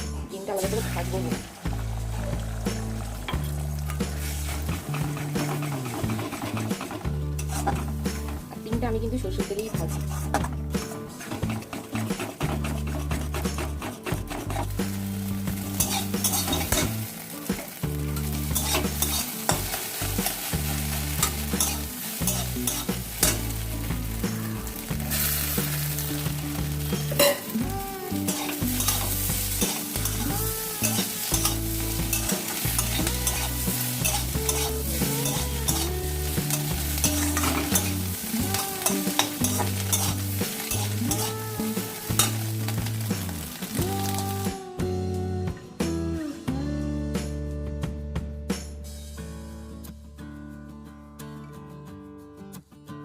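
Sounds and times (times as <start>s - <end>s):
egg sizzling in a pan: 0.5s - 8.6s, 11.2s - 44.4s
spatula scraping a pan: 3.4s - 8.4s, 9.6s - 17.0s, 18.2s - 23.6s, 28.1s - 41.4s.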